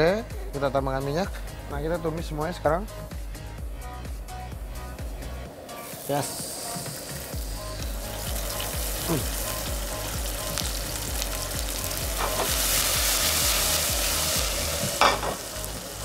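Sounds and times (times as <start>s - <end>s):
low pulsing beat: 0.0s - 5.5s, 7.0s - 16.0s
shallots and garlic sizzling in oil: 5.7s - 16.0s.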